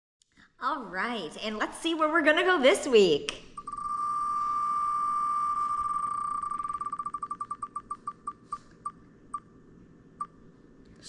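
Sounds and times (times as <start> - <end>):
electronic wheel ticking: 3.6 - 8.4.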